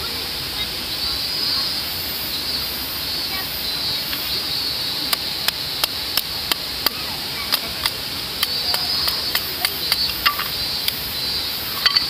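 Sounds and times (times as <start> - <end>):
fire hiss: 0.0 - 12.0
twigs crackling and popping: 5.1 - 11.0.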